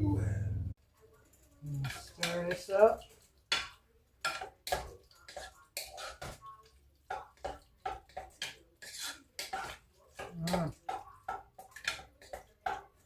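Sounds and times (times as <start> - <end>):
low hum: 0.0 - 0.8
spoon scraping a cooking pot: 1.4 - 13.0.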